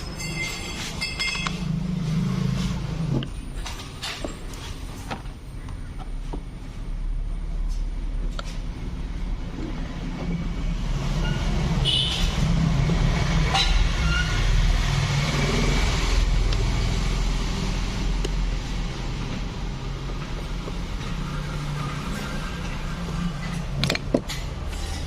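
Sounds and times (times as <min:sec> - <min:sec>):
vehicle engine running: 0:14.7 - 0:24.1.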